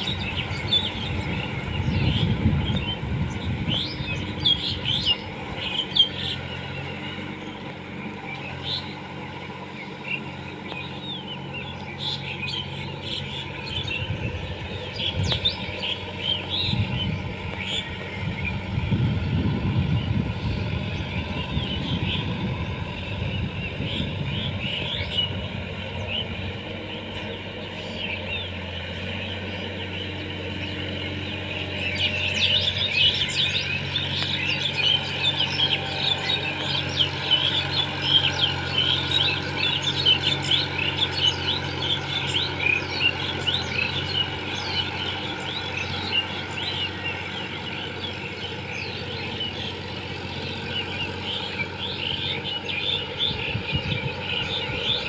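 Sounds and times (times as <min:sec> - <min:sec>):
birds chirping: 0:00.0 - 0:55.0
tractor engine running: 0:00.0 - 0:55.0.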